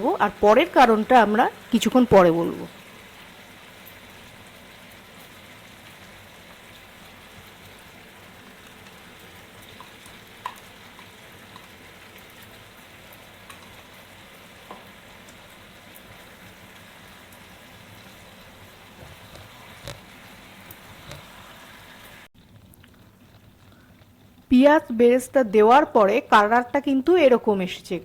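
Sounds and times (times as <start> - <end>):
food sizzling in a pan: 0.0 - 28.0
small pops: 18.9 - 21.5.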